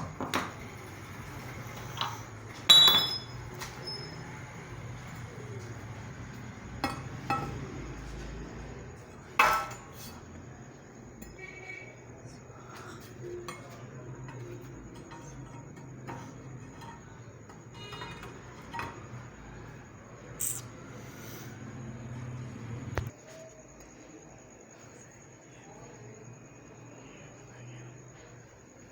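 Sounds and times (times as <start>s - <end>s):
metal tools clinking: 1.9s - 4.2s.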